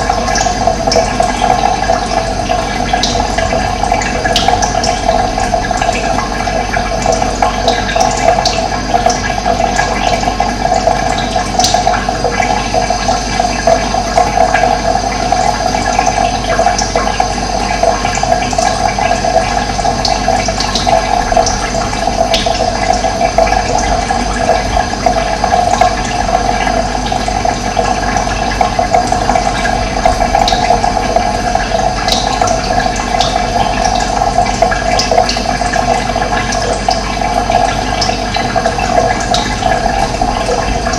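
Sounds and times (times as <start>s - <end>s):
water rushing: 20.6s - 40.9s.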